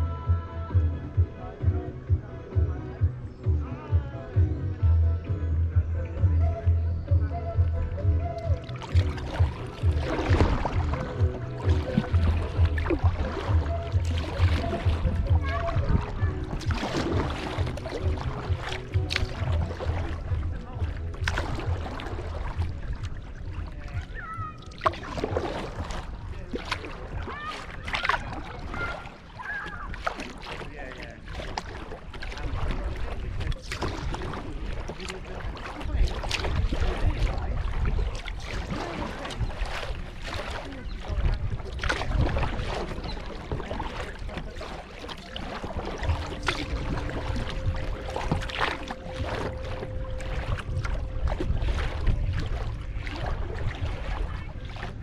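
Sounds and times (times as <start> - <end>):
low wind rumble on microphone: 0.0 - 55.0
paddle pulling through water: 0.0 - 55.0
water dripping: 8.2 - 32.8, 41.8 - 53.2.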